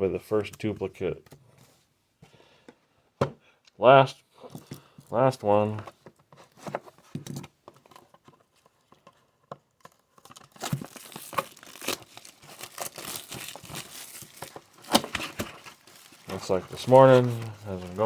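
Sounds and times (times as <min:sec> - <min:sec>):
packaging torn and crinkled: 0:09.9 - 0:18.0.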